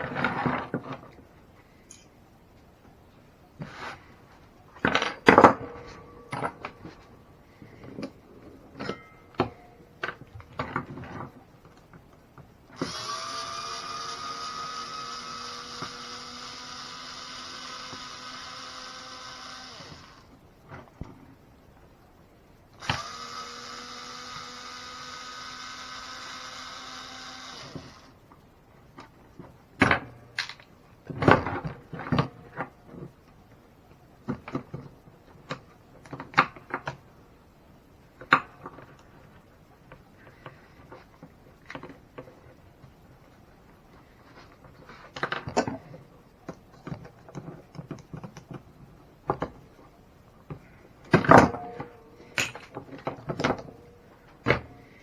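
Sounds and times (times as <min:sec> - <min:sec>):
small electric motor whirring: 0:12.8 - 0:20.3, 0:22.8 - 0:28.2.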